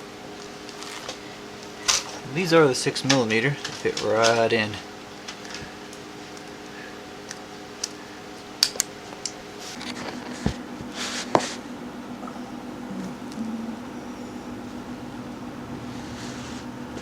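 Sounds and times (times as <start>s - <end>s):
steady low hum: 6.4s - 17.0s.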